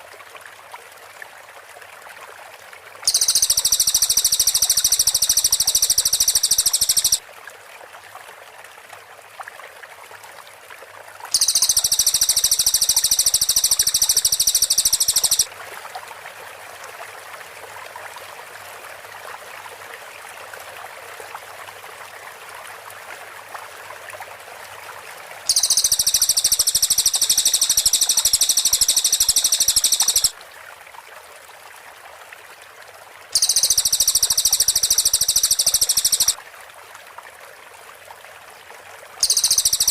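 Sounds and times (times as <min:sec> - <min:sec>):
background hiss: 0:03.1 - 0:07.2, 0:11.4 - 0:15.5, 0:25.5 - 0:30.3, 0:33.4 - 0:36.4, 0:39.2 - 0:39.9
bird singing rapid trills: 0:03.1 - 0:07.2, 0:11.4 - 0:15.5, 0:25.5 - 0:30.3, 0:33.4 - 0:36.4, 0:39.2 - 0:39.9.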